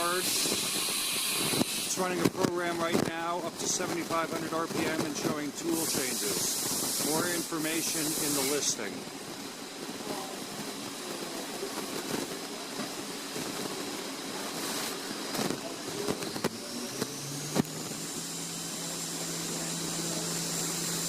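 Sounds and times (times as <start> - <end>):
spindle high whine: 8.4 - 21.0
machine mechanical whir: 9.8 - 21.0.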